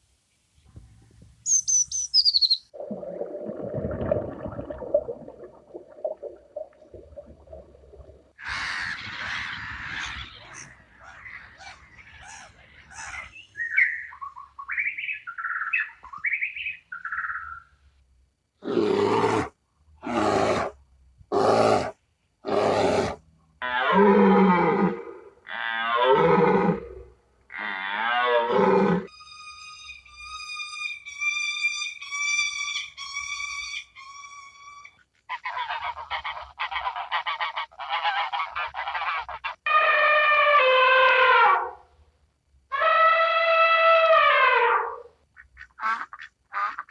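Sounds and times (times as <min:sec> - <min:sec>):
animal calls: 0:08.4 - 0:17.5.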